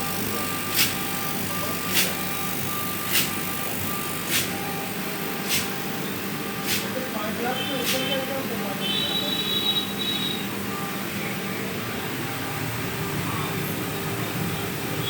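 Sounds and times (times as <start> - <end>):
stone router running: 0.0 - 15.0.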